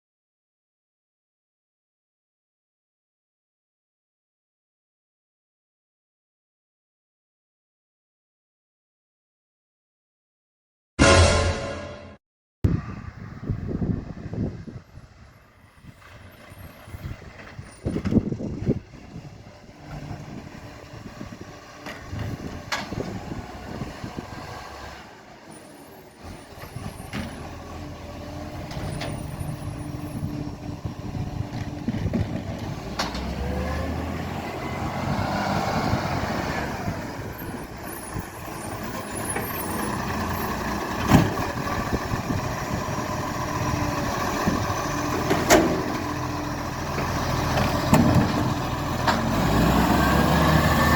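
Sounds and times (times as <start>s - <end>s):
garbage truck engine running: 36.9s - 50.9s.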